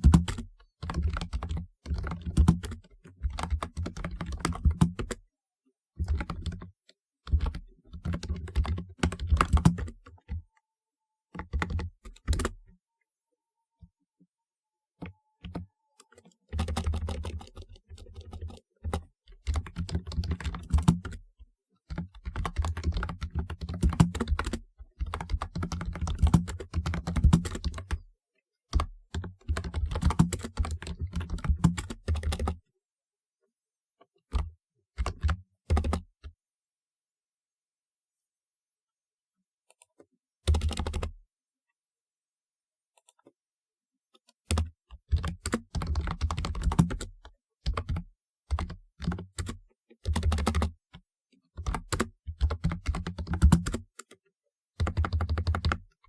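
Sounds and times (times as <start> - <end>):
keyboard keystrokes clicking: 44.5 - 47.1, 47.7 - 50.7, 51.6 - 54.1, 54.8 - 55.8.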